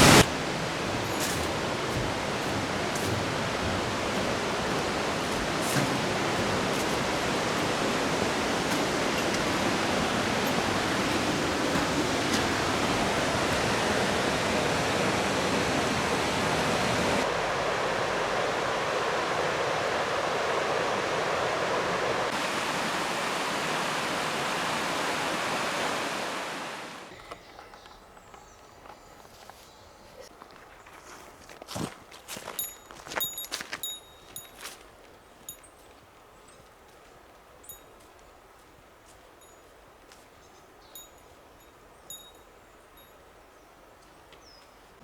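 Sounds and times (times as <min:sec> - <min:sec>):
waterfall rushing: 0:00.0 - 0:27.1.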